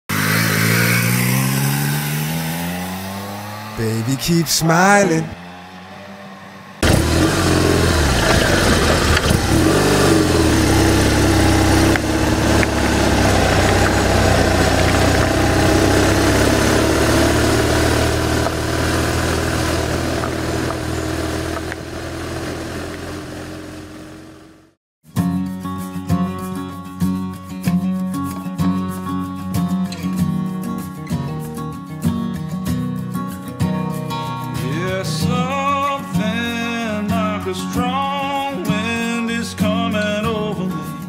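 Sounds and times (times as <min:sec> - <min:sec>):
motorcycle engine revving: 0:00.1 - 0:04.2, 0:05.2 - 0:24.8.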